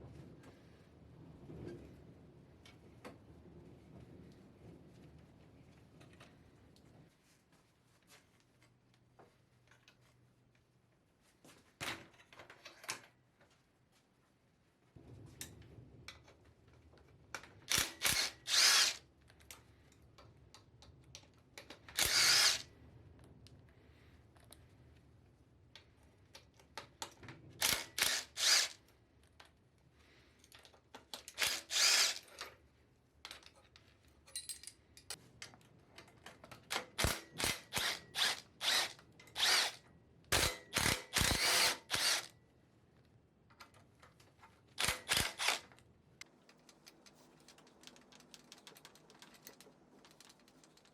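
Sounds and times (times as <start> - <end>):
power tool bursts: 17.7 - 19.0, 22.0 - 22.7, 27.6 - 28.8, 31.4 - 32.3, 37.0 - 39.8, 40.4 - 42.3, 44.8 - 45.7.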